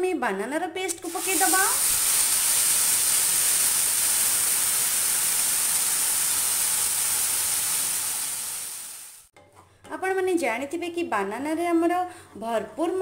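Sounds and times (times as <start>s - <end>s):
paste sizzling in hot oil: 0.9s - 9.3s.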